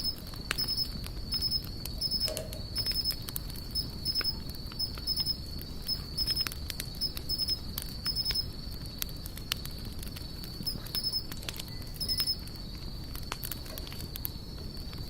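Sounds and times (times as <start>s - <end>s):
insect short high chirps: 0.0s - 8.5s, 10.6s - 12.4s
insect high-pitched trill: 0.0s - 8.6s, 10.5s - 12.7s
wood fire crackling: 0.0s - 15.0s.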